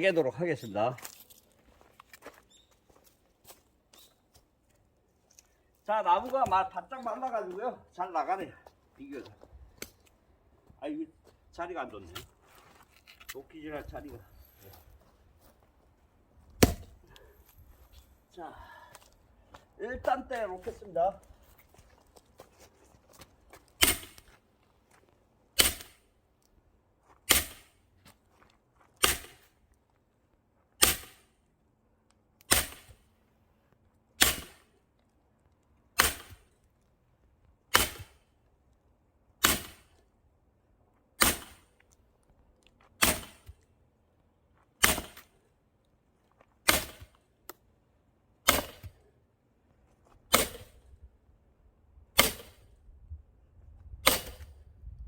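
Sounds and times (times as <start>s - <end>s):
axe splitting firewood: 16.5s - 17.2s, 23.8s - 24.4s, 25.6s - 26.0s, 27.3s - 27.8s, 29.0s - 29.5s, 30.8s - 31.3s, 32.5s - 33.0s, 34.2s - 34.7s, 36.0s - 36.5s, 37.7s - 38.2s, 39.4s - 40.0s, 41.2s - 41.7s, 43.0s - 43.6s, 44.8s - 45.4s, 46.6s - 47.6s, 48.4s - 49.0s, 50.2s - 50.8s, 52.2s - 52.7s, 54.0s - 54.6s.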